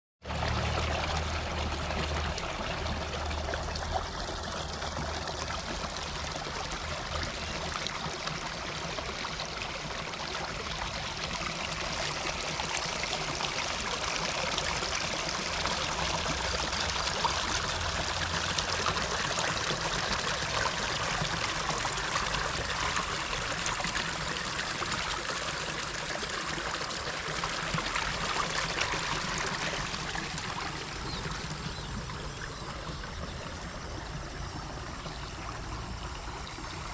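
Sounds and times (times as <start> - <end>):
water running steadily: 0.2 - 36.9.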